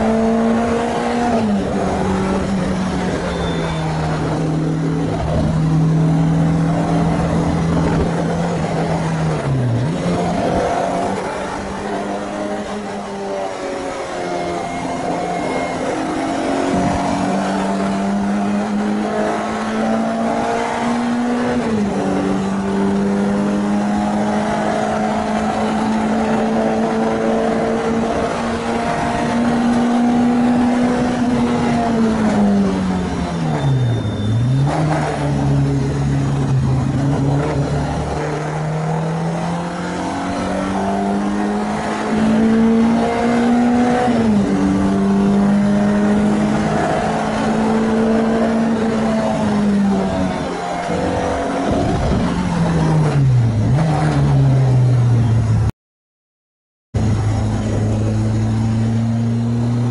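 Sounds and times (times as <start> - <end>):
car engine accelerating through gears: 0.0 - 55.7, 57.0 - 59.9.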